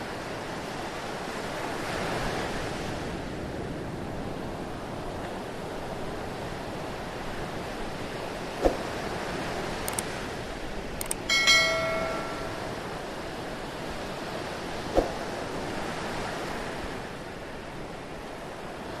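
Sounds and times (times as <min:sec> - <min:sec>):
bright metallic ring: 0:11.1 - 0:13.0.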